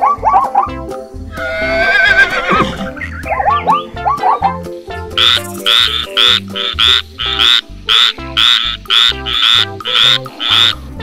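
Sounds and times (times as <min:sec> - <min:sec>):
background music: 0:00.0 - 0:11.0
frog croaking: 0:05.2 - 0:11.0.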